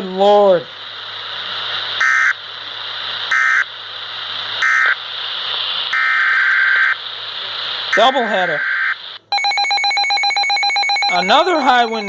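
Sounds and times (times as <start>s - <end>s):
radio hiss and hum: 0.0s - 9.3s, 11.0s - 12.0s
screeching data tone bursts: 2.0s - 2.4s, 3.3s - 3.7s, 4.6s - 5.0s, 5.9s - 7.0s, 7.9s - 12.0s.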